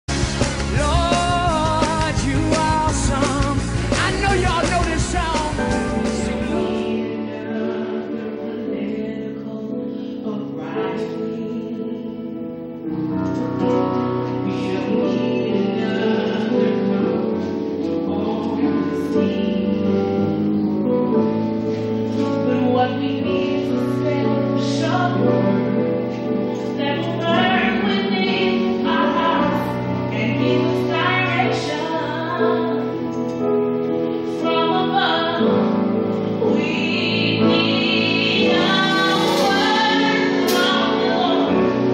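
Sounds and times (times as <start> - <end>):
instrumental accompaniment: 0.1 - 9.8, 10.6 - 41.9
choir singing: 34.3 - 41.9.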